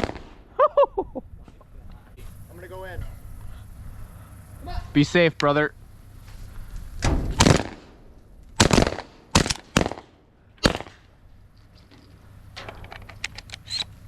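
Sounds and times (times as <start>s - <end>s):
shotgun shots: 0.0s - 0.5s, 7.0s - 11.1s.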